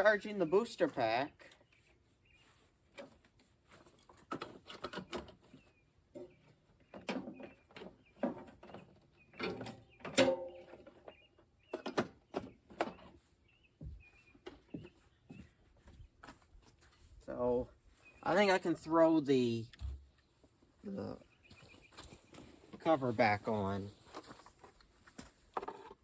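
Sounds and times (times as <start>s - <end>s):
knocks and clatters of tools: 2.9s - 13.2s, 24.1s - 26.0s
faint high bird chirps: 4.8s - 16.2s, 16.8s - 23.8s.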